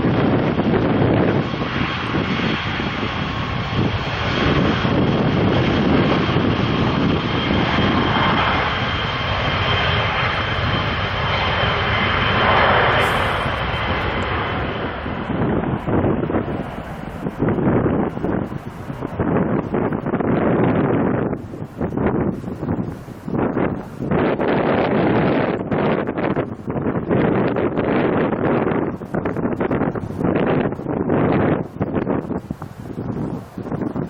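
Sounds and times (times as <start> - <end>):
high engine whine: 0.0 - 27.2
jet airliner engines roaring: 0.0 - 34.0.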